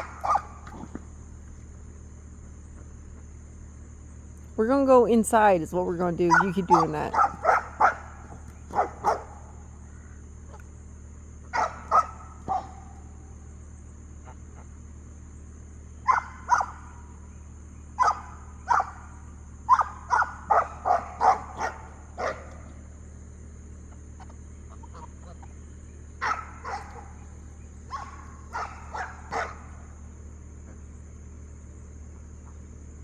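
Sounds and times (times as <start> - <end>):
dog barking: 0.0 - 0.9, 6.3 - 9.4, 11.5 - 13.0, 16.1 - 16.8, 18.0 - 19.0, 19.7 - 22.7, 26.2 - 27.2, 27.9 - 29.8.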